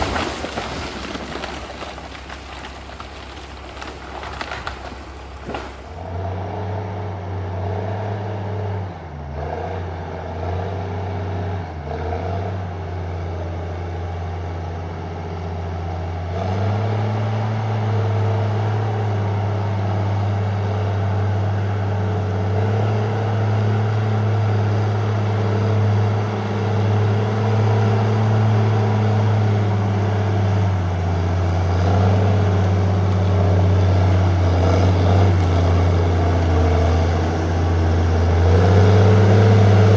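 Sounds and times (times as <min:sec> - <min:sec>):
diesel engine running: 0:00.0 - 0:07.4, 0:16.6 - 0:39.9.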